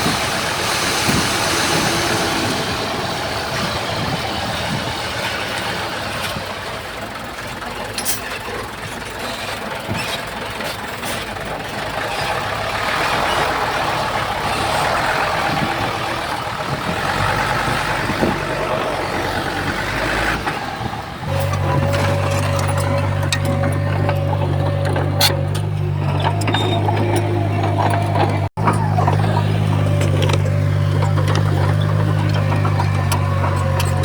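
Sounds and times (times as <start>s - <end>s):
heavy diesel machinery running: 0.0s - 34.0s.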